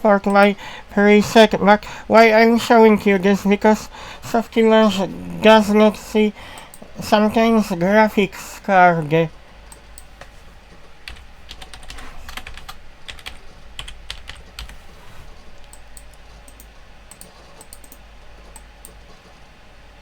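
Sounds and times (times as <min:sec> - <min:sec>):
faint low hum: 0:00.0 - 0:20.0
typing on computer keyboard: 0:11.0 - 0:14.8, 0:15.6 - 0:19.2.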